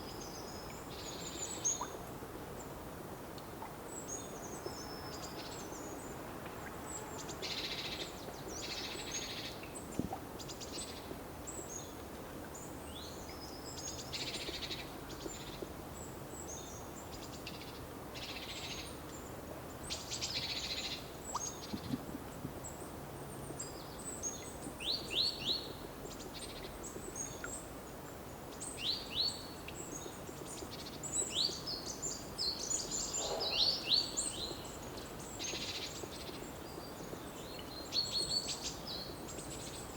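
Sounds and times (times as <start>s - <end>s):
low background hiss: 0.0s - 39.9s
songbirds singing and chirping: 28.5s - 39.9s.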